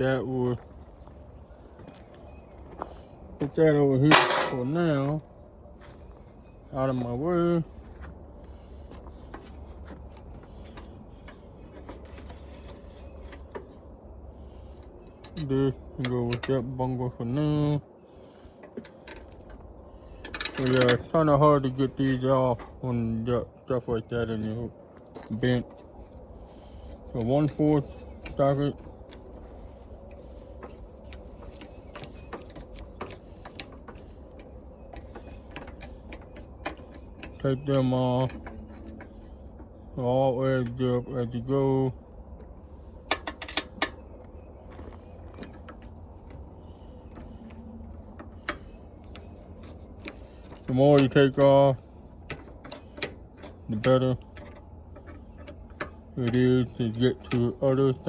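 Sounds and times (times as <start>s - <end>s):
steady low hum: 0.0s - 58.0s
small clicks and rattles: 18.6s - 22.8s, 25.0s - 40.0s, 42.3s - 58.0s
socket ratchet clicking: 45.4s - 58.0s.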